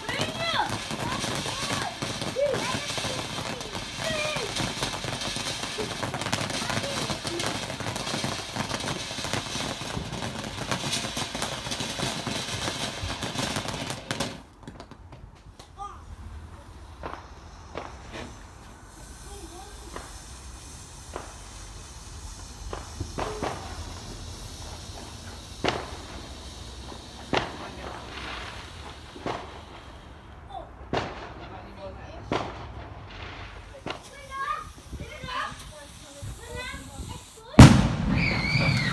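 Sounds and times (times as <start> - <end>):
background hiss: 0.0 - 38.9
firework crackling: 0.0 - 38.9.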